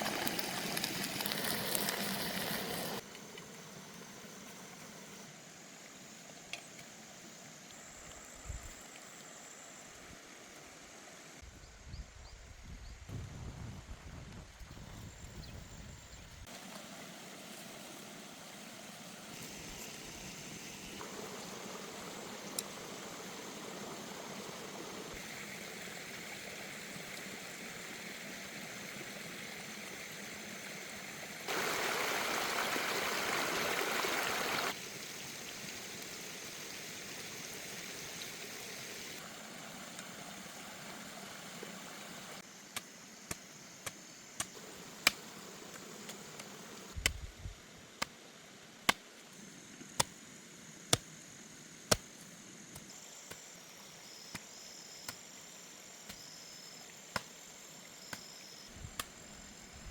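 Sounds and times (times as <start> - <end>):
stream water flowing: 0.0 - 5.2, 16.5 - 42.4.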